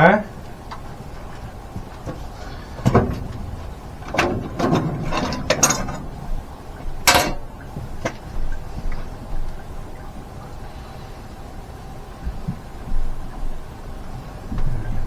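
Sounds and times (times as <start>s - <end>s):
short clunks and scrapes: 0.7s - 9.1s.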